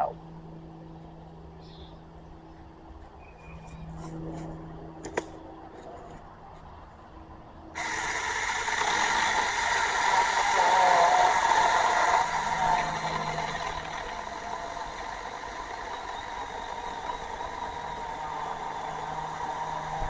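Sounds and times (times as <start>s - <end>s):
mini chainsaw cutting wood: 7.8s - 20.0s.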